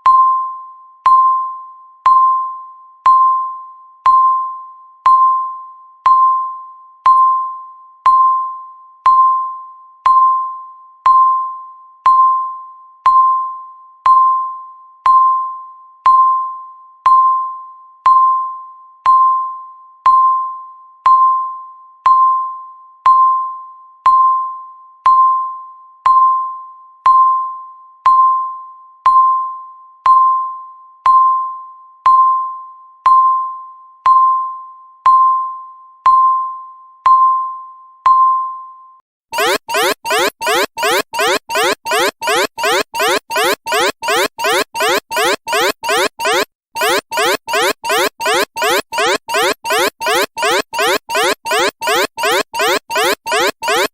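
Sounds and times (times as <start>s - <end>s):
timer electronic ding: 39.4s - 53.9s.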